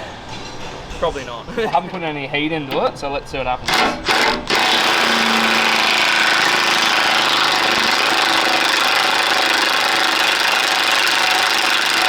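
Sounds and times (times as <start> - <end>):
impact wrench rattling: 2.7 - 12.0.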